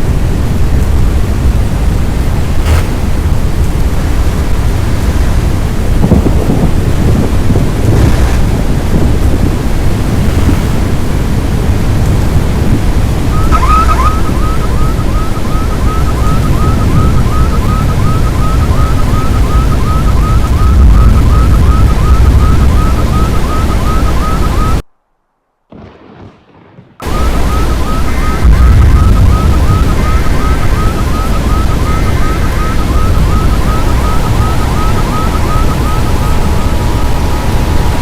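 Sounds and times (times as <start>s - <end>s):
loud steady rumbling: 0.0s - 24.8s, 27.0s - 38.0s
steady tone: 27.0s - 38.0s.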